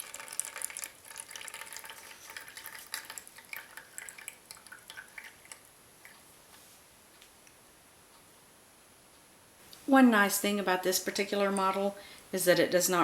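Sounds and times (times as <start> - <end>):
water dripping into cup: 0.0 - 6.2.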